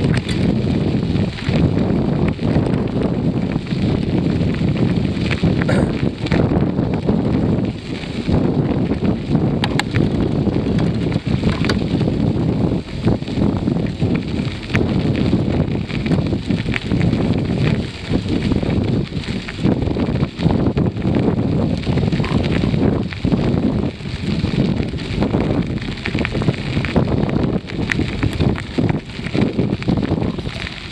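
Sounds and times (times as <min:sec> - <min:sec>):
small clicks and rattles: 0:00.0 - 0:00.5, 0:08.9 - 0:12.1, 0:21.8 - 0:23.2
wind buffeting microphone: 0:00.0 - 0:30.9.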